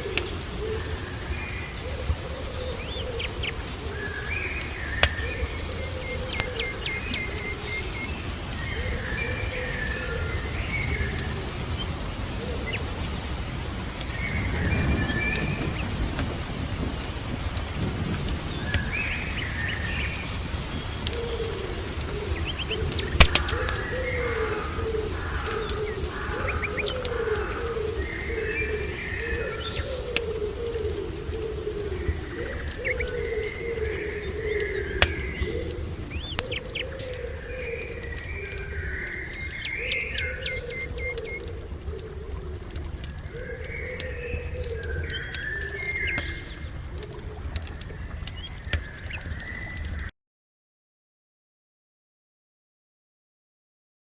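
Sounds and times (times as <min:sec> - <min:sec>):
fireplace crackle: 0:00.0 - 0:50.1
rain: 0:00.0 - 0:50.1
small birds chirping: 0:00.0 - 0:50.1
sharp pop: 0:23.2 - 0:23.6.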